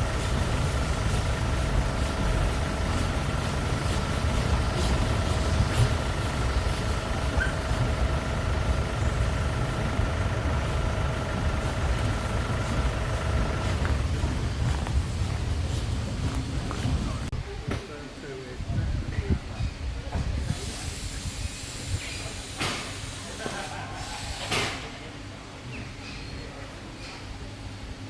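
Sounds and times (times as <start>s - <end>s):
steady whine: 0.0s - 15.0s
vehicle engine rumbling: 0.0s - 17.3s.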